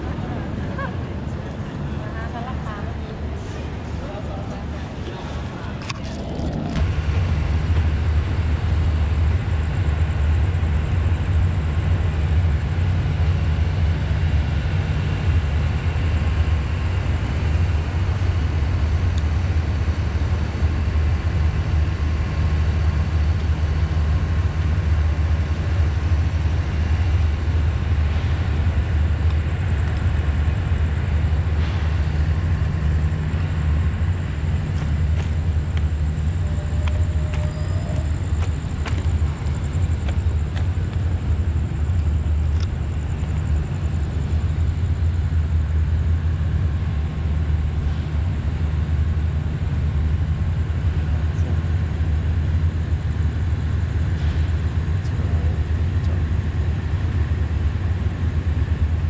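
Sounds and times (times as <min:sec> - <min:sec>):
diesel train rumbling: 0:00.0 - 0:59.0.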